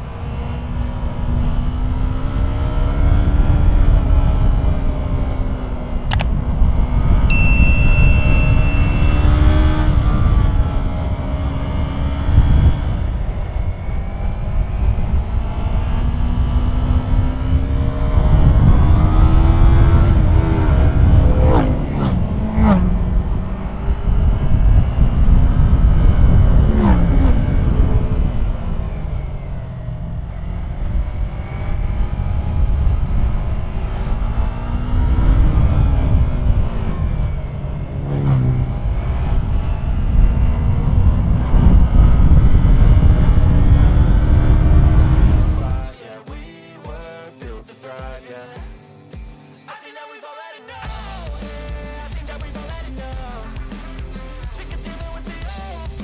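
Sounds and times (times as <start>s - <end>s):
motorcycle engine revving: 0.0s - 45.9s
wind rumble on microphone: 0.0s - 45.9s
wind on microphone: 38.4s - 45.9s.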